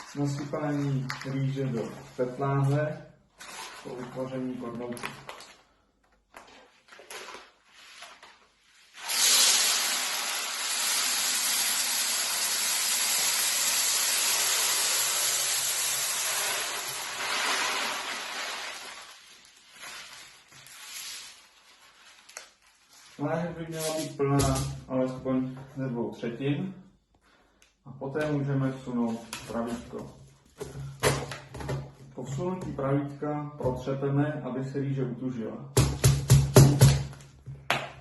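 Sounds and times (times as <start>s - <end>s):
paper and bottle handling: 0.0s - 9.0s, 17.1s - 24.7s
rice grains pouring into bottle: 9.0s - 9.8s, 13.8s - 19.6s.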